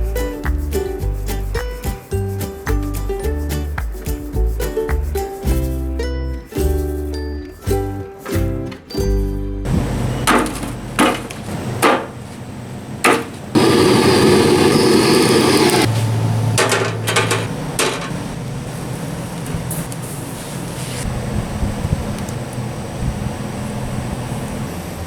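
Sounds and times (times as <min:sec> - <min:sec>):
axe chopping wood: 0:13.0 - 0:13.4
rushing hiss: 0:13.6 - 0:16.3.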